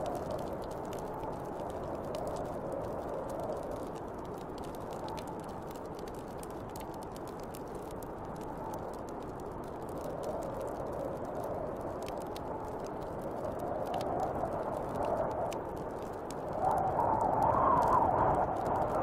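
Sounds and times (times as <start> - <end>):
wood fire crackling: 0.0 - 19.0
wind blowing in gusts: 10.0 - 19.0.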